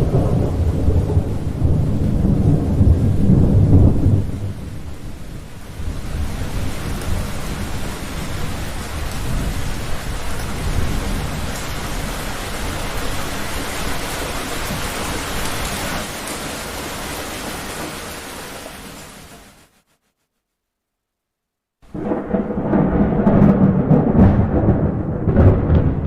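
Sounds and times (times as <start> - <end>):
rolling thunder: 0.0 - 15.9, 21.9 - 26.0
heavy rain: 0.0 - 19.8, 21.8 - 26.0.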